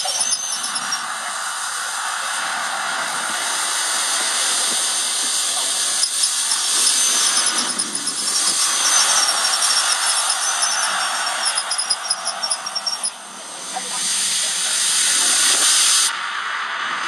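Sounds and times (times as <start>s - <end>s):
electric drill whirring: 0.0s - 1.0s, 4.2s - 13.2s
rapid high clicks: 0.0s - 1.1s, 4.6s - 13.2s.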